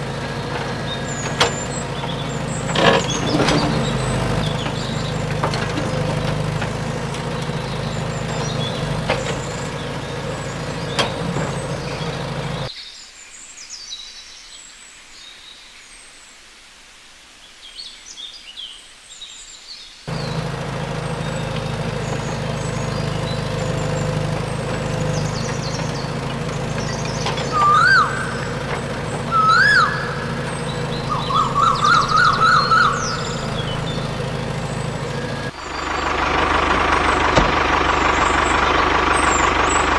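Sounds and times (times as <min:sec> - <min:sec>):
birds chirping: 0:00.0 - 0:12.8, 0:19.4 - 0:39.9
loud whistled chirps: 0:26.7 - 0:34.1.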